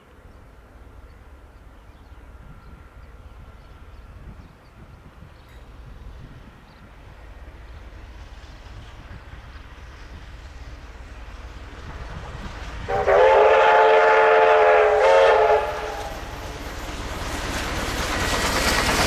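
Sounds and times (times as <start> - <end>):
low rumble of train: 0.0 - 19.0
steam locomotive whistle: 12.8 - 16.6.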